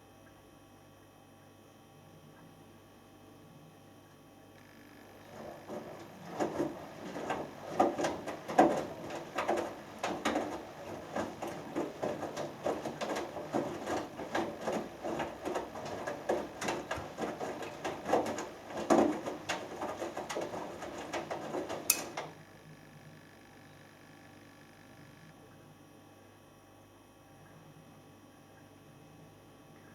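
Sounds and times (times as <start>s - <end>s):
washing machine laundry sloshing: 5.0s - 22.4s
washing machine click: 5.3s - 22.4s.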